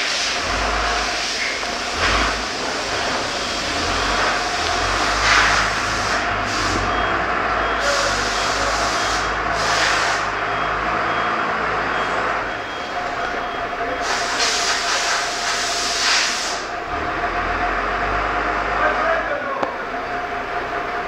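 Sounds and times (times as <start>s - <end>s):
loud hiss bursts: 0.0s - 7.0s, 7.8s - 10.4s, 14.0s - 16.8s
forklift diesel engine running: 0.0s - 21.0s.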